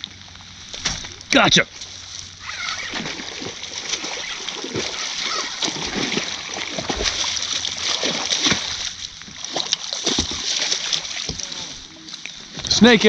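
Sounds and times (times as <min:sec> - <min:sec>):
rain hissing: 0:00.1 - 0:07.8
fish thrashing and splashing in water: 0:00.4 - 0:12.5.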